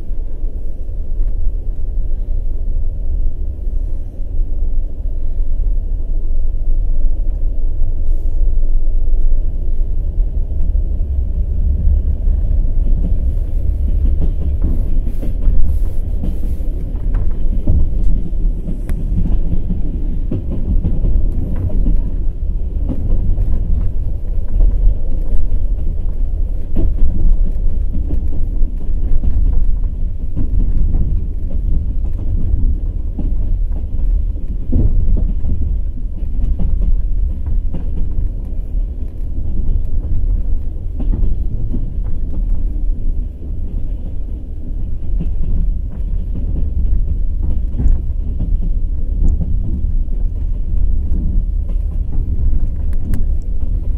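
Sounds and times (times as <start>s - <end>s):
train rumble: 0.0s - 53.9s
train wheels clattering over rail joints: 10.6s - 53.9s.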